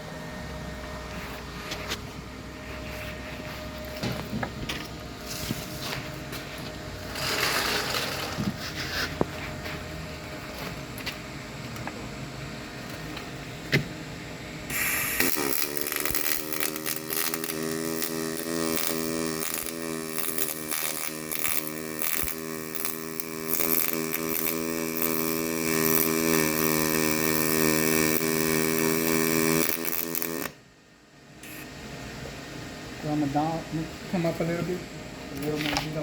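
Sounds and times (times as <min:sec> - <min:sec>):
welding arc crackling and buzzing: 0:00.9 - 0:12.0, 0:14.6 - 0:30.6.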